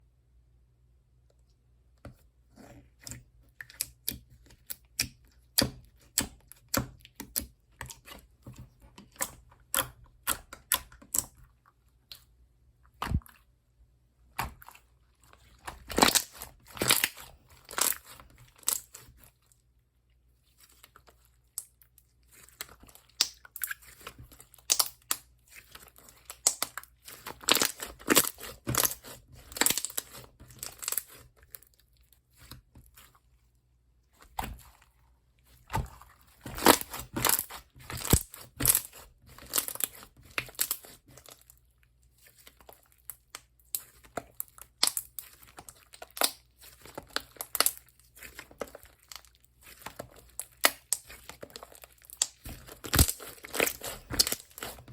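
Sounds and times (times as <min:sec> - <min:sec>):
slime squished by hand: 0:14.3 - 0:19.5, 0:20.5 - 0:33.2, 0:34.1 - 0:54.9.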